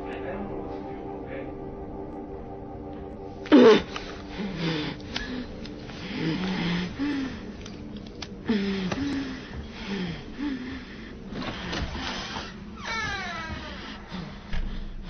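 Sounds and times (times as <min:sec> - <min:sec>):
person moaning: 0:03.4 - 0:07.6.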